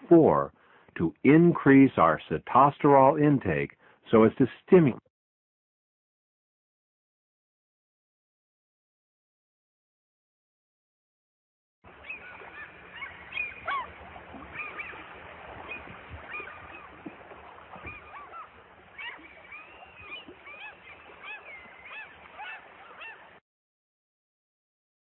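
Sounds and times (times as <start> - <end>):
flock of birds calling: 11.9 - 23.4.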